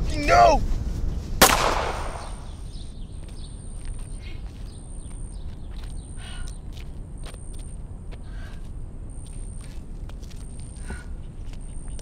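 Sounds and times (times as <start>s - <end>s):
gunshot echo: 1.4s - 2.6s.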